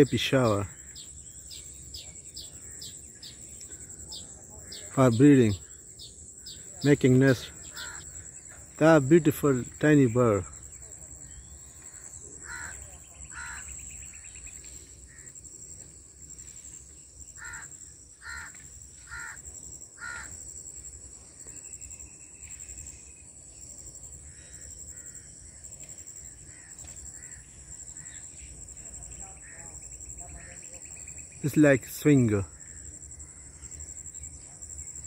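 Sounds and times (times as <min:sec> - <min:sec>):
bird harsh calls: 0:00.0 - 0:15.4, 0:17.4 - 0:20.4
high-pitched insect drone: 0:00.0 - 0:35.0.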